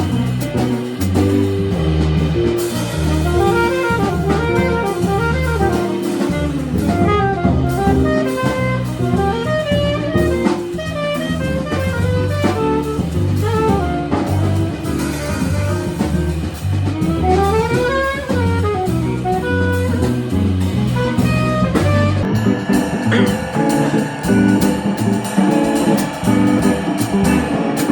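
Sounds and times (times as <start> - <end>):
bass line: 0.0 - 27.9
drum kit: 0.0 - 27.9
horn solo: 2.1 - 25.3.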